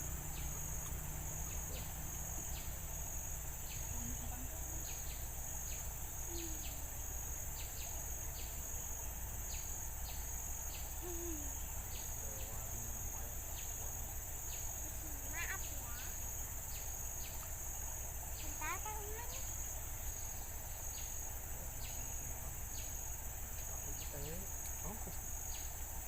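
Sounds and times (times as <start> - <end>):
insects trilling: 0.0 - 26.0
low calls: 0.0 - 26.0
low steady rumble: 0.0 - 26.0.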